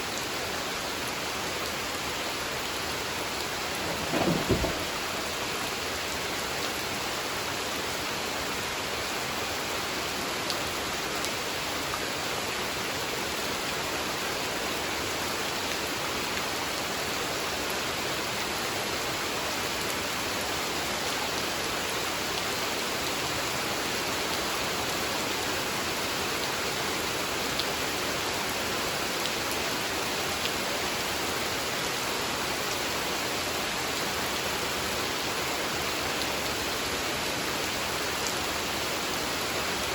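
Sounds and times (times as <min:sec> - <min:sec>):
steady rain hiss: 0:00.0 - 0:39.9
raindrop ticks: 0:03.7 - 0:05.1.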